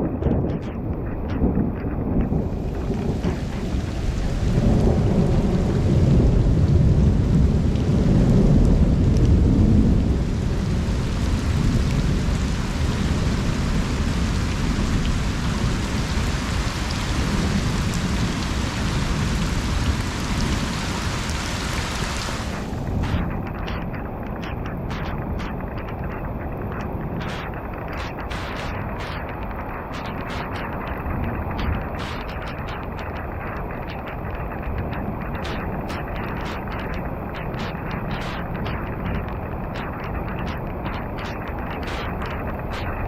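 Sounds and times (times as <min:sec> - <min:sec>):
low rumble of thunder: 0:00.0 - 0:21.5
rain falling on a pond: 0:02.2 - 0:43.0.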